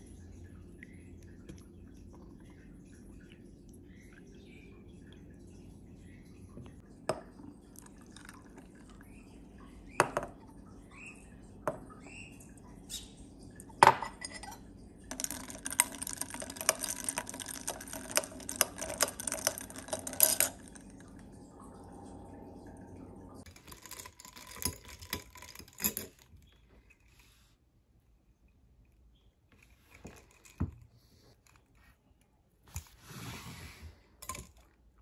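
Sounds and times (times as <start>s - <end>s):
liquid pouring into glass: 7.1s - 9.3s, 13.6s - 26.0s
faint bird chirps: 10.7s - 13.4s.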